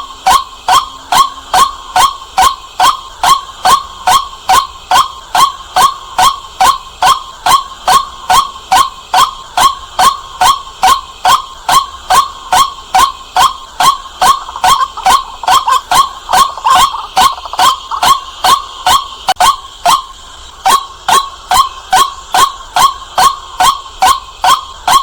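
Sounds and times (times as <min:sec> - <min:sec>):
waterhen calling: 0:00.0 - 0:25.0.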